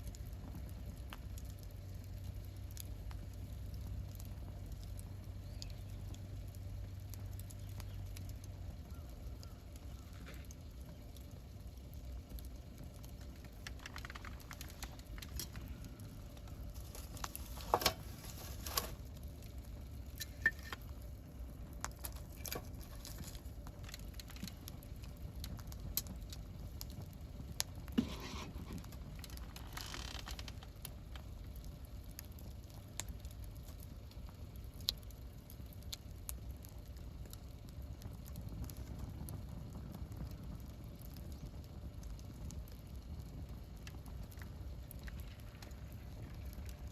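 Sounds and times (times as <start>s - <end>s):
campfire crackling: 0.0s - 46.9s
fire popping: 0.0s - 46.9s
low rumble: 10.7s - 18.2s.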